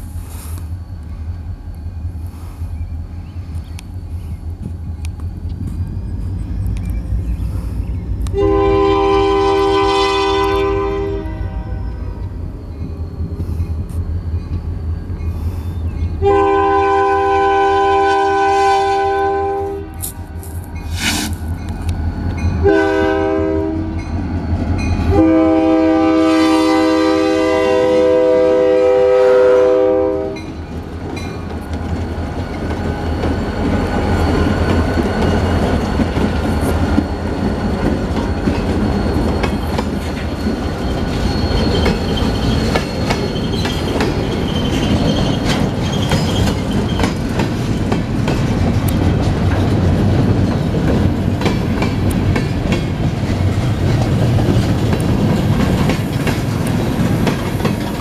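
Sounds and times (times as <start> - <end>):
locomotive running past: 0.0 - 58.0
locomotive air horn blasts: 8.3 - 12.2, 16.2 - 20.2, 22.6 - 24.0, 25.1 - 30.5
train wheels clicking over rail joints: 30.4 - 58.0.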